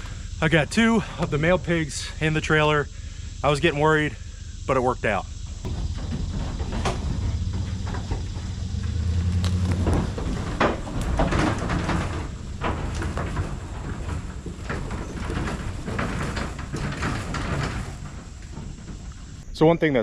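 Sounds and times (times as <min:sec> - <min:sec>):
low vehicle hum: 0:00.0 - 0:19.5
livestock trailer knocks and rattles: 0:05.6 - 0:19.4.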